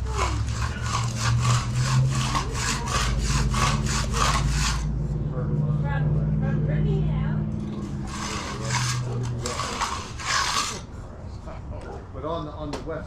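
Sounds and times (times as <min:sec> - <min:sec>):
tool scraping over concrete: 0:00.0 - 0:05.0, 0:07.7 - 0:11.1
low engine hum: 0:00.0 - 0:09.6.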